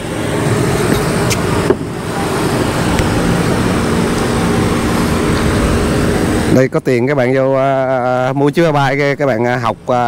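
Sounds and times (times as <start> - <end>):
car engine running: 0.0 - 6.9.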